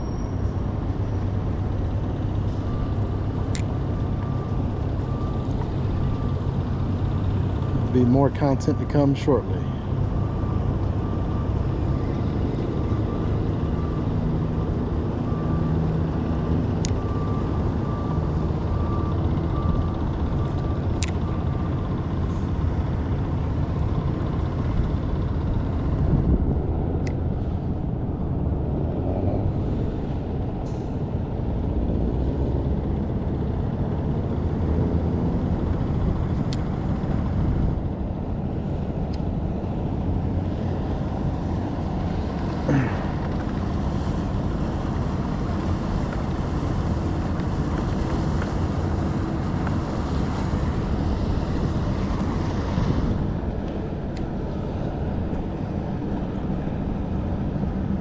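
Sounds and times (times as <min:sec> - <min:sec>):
wind noise on microphone: 0:25.6 - 0:31.3, 0:44.2 - 0:58.0.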